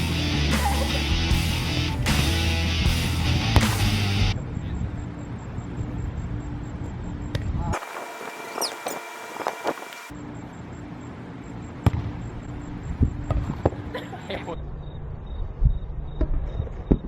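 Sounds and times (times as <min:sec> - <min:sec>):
volleyball being hit: 0:03.6 - 0:04.0.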